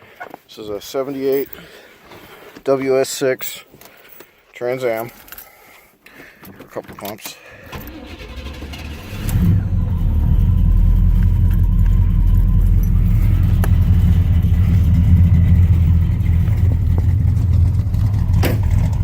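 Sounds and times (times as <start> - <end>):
engine revving from throttle pumps: 7.6 - 19.0
car engine idling deeply: 7.8 - 19.0.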